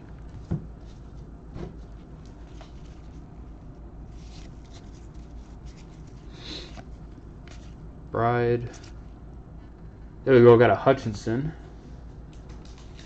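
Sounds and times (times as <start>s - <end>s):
low steady hum: 0.0s - 13.0s
cards ticking and rustling: 12.3s - 13.0s.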